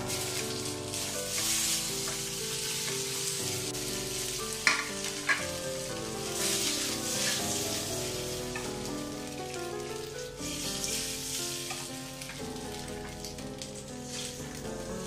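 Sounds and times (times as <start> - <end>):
dumplings sizzling in hot oil: 0.0 - 15.0
soft background music: 0.0 - 15.0.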